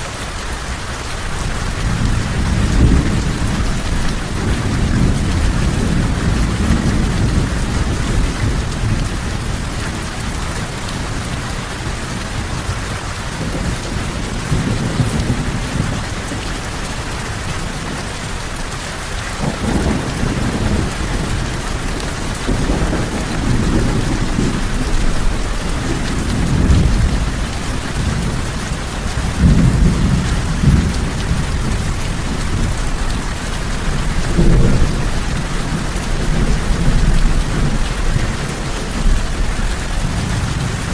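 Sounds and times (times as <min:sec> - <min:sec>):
heavy rain: 0:00.0 - 0:40.9
rolling thunder: 0:01.4 - 0:18.4, 0:19.3 - 0:40.9.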